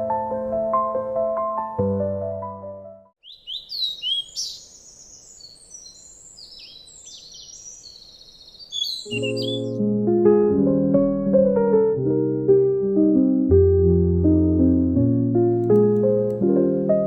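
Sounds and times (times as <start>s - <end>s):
gentle piano music: 0.0s - 3.1s, 9.0s - 17.0s
outdoor background hiss: 3.2s - 9.6s
birds chirping and singing: 3.2s - 9.8s.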